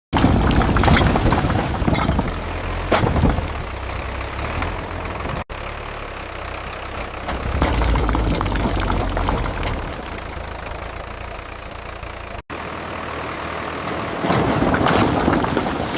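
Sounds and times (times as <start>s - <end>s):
knocks and clatter: 0.1s - 5.4s, 7.0s - 12.4s, 14.2s - 15.9s
tractor engine idling: 0.2s - 14.2s.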